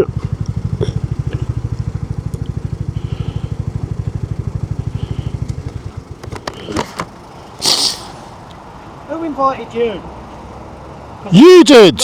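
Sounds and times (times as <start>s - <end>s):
motorcycle engine idling: 0.0s - 11.3s
sharp clicks: 5.3s - 8.6s.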